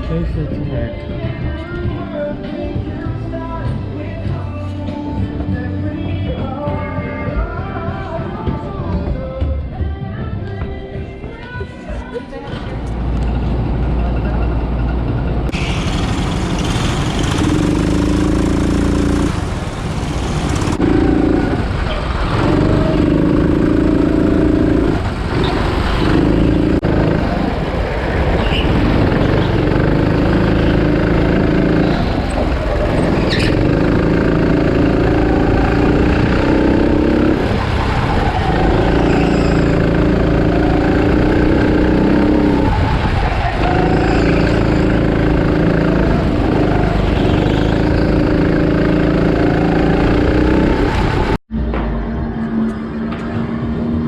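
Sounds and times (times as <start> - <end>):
car engine accelerating through gears: 15.5 - 27.7, 28.5 - 51.4.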